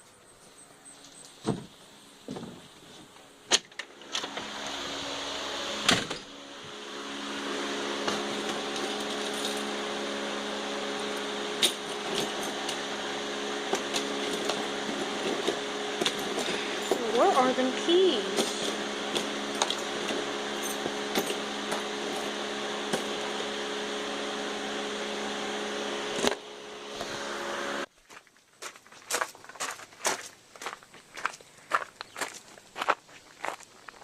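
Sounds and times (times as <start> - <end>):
motor humming: 0.8 - 27.9.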